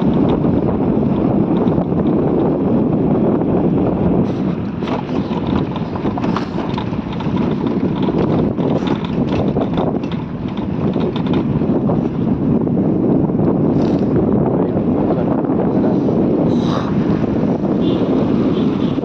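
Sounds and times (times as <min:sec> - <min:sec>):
rattles and knocks: 0:00.0 - 0:02.6, 0:04.2 - 0:12.2
wind buffeting microphone: 0:00.0 - 0:19.0.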